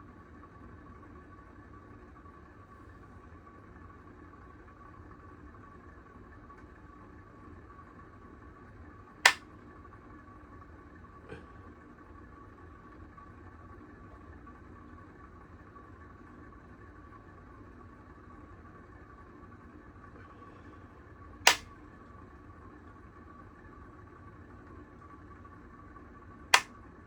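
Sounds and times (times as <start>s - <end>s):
ceiling fan humming: 8.9s - 9.4s, 10.2s - 26.9s
sharp click: 21.5s - 21.7s.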